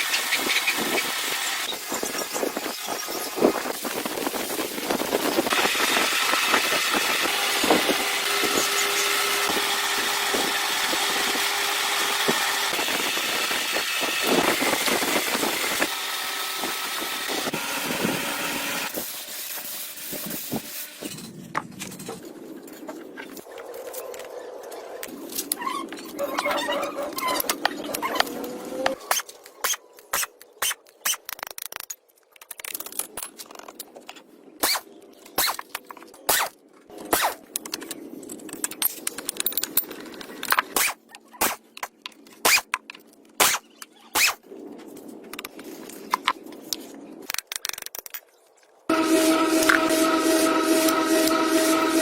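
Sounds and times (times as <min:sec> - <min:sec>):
loud rubbing with hum: 0:48.9 - 0:52.0
metal scraping: 0:48.9 - 0:52.0.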